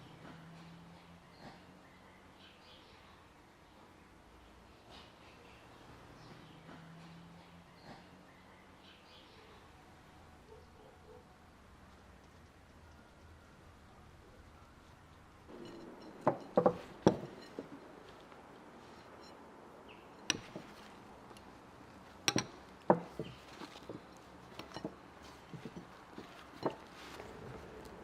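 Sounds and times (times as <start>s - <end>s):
dishes and utensils clinking: 15.5s - 18.0s, 20.1s - 21.5s, 22.2s - 27.6s.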